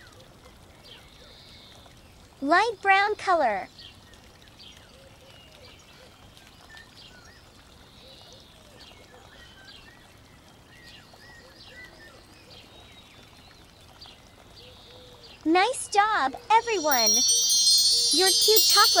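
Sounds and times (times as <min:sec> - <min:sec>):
low steady hiss: 0:00.0 - 0:19.0
birds chirping: 0:15.6 - 0:19.0.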